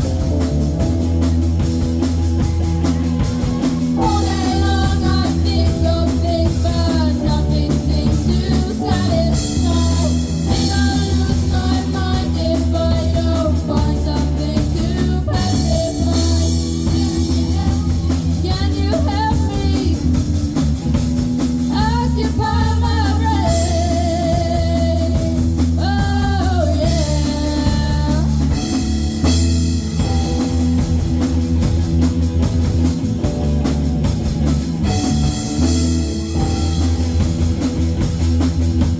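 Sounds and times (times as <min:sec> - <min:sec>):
bass guitar: 0:00.0 - 0:38.9
drum kit: 0:00.0 - 0:38.9
electric guitar: 0:00.0 - 0:38.9
keyboard: 0:00.0 - 0:38.9
person singing: 0:03.3 - 0:20.3, 0:21.7 - 0:29.1.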